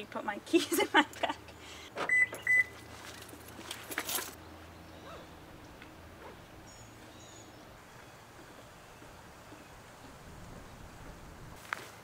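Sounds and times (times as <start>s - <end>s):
distant bird chirps: 4.4s - 11.0s.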